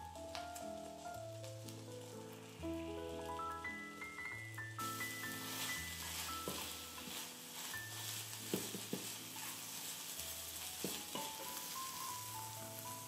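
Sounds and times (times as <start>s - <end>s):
food sizzling in frying pan: 0.0s - 13.0s
soft background music: 0.0s - 13.0s
spatula stirring: 4.8s - 13.0s
spatula tapping on pan: 6.4s - 7.2s, 8.5s - 9.6s, 10.8s - 11.8s.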